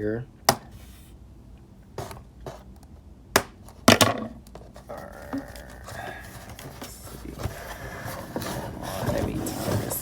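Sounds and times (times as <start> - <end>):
rustling plastic and cardboard: 3.6 - 10.0.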